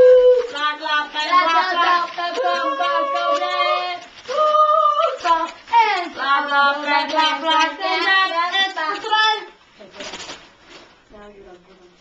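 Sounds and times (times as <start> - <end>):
children singing: 0.0 - 9.5.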